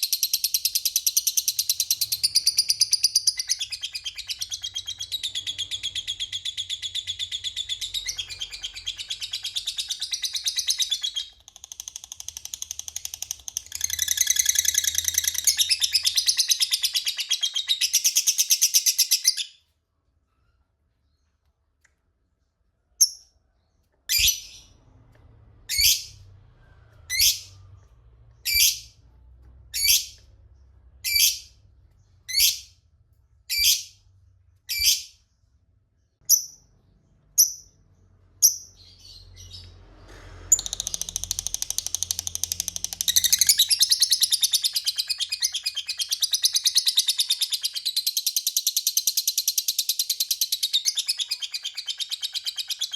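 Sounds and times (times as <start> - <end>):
sharp bird calls: 0.0 - 19.6, 40.5 - 52.9.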